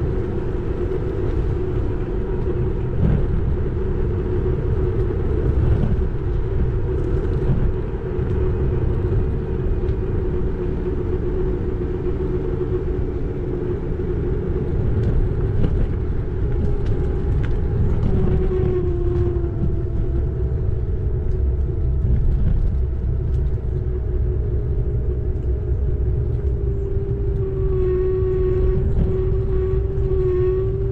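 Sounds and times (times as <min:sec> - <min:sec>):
tyres on the road: 0:00.0 - 0:30.9
wind rumble: 0:00.0 - 0:30.9
higher whine falling in pitch: 0:23.4 - 0:30.9
electric motor whine: 0:23.9 - 0:30.9.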